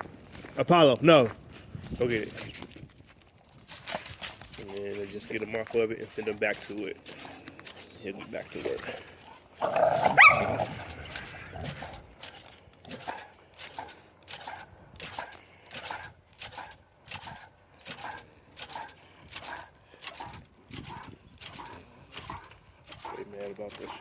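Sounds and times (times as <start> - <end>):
footsteps on frozen ground: 0.0 - 12.1.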